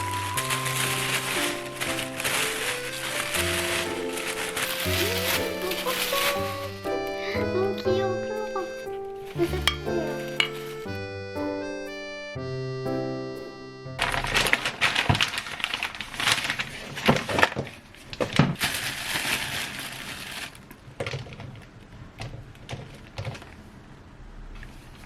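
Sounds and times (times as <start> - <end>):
rustling and crinkling: 0.0 - 7.1, 9.2 - 10.9, 14.0 - 24.0.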